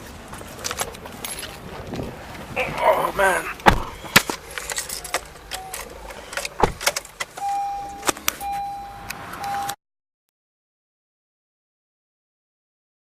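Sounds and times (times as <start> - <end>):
car warning chime beeps: 4.9 - 5.9, 7.4 - 9.8.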